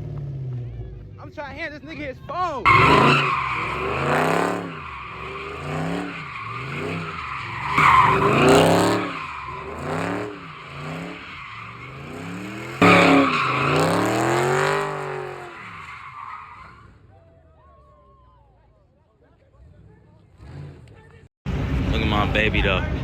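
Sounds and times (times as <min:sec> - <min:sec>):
car engine revving: 0:02.6 - 0:16.9, 0:19.6 - 0:22.1
tyres screeching: 0:02.7 - 0:17.0.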